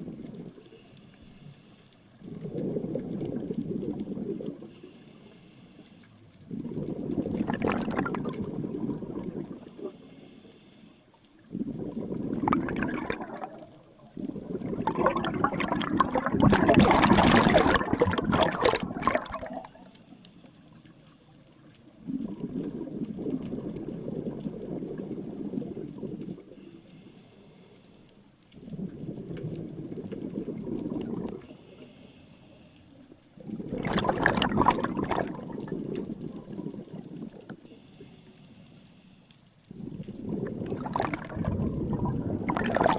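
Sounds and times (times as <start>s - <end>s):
exhaled bubbles rumbling underwater: 0.0s - 0.8s, 2.1s - 4.9s, 6.2s - 10.2s, 11.2s - 20.0s, 21.2s - 26.8s, 28.5s - 31.8s, 33.0s - 37.8s, 39.6s - 42.9s
regulator hiss on inhale: 0.5s - 2.3s, 4.6s - 6.6s, 9.4s - 11.8s, 19.6s - 21.7s, 26.0s - 28.6s, 31.4s - 33.4s, 37.5s - 40.0s.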